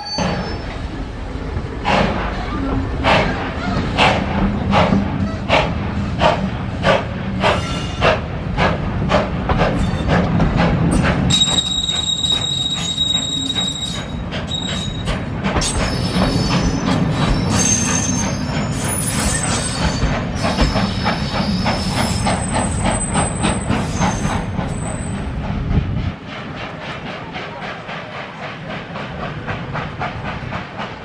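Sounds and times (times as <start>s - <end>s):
train wheels squealing on rails: 0.0s - 1.1s, 1.9s - 8.3s, 9.1s - 10.2s, 10.9s - 25.5s.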